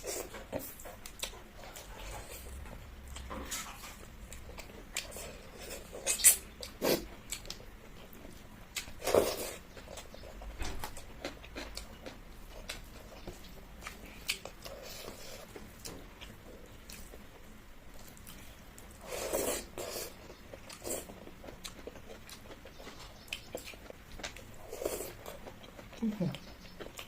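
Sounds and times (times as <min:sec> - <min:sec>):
chewing and biting: 0:18.0 - 0:27.0.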